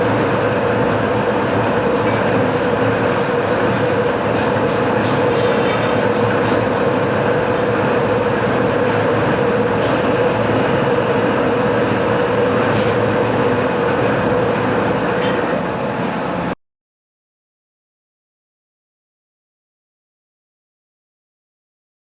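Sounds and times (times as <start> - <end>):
metalworking machine humming: 0.0 - 16.6.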